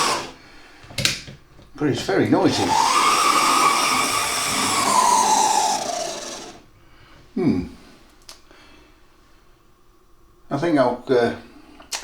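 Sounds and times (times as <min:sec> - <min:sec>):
model locomotive motor whining: 0:00.0 - 0:00.4, 0:02.0 - 0:06.7.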